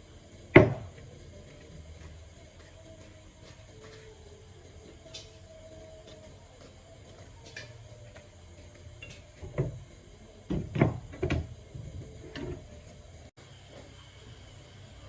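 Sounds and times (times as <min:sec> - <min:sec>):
knocks and clunks: 0:00.5 - 0:01.0, 0:10.5 - 0:13.0.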